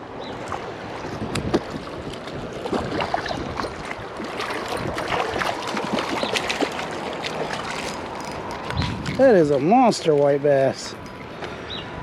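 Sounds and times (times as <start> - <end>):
water splashing and sloshing: 0.0 - 12.0
fish thrashing in water: 1.3 - 9.2.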